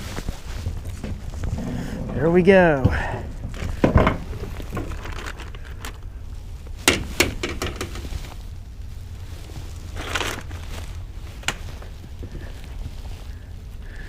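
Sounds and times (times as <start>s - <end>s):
low steady rumble: 0.0s - 14.0s
handling knocks and clicks: 0.2s - 6.1s, 6.8s - 8.4s, 11.4s - 12.5s.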